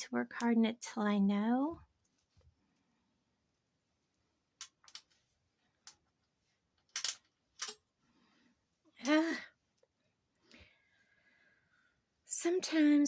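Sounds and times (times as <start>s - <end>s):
beads and jewelry clicking: 6.9s - 7.8s.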